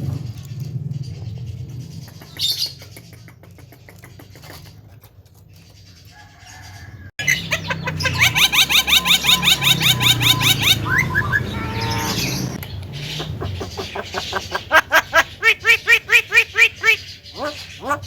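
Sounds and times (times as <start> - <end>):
myna rising chirps: 7.2 - 18.0.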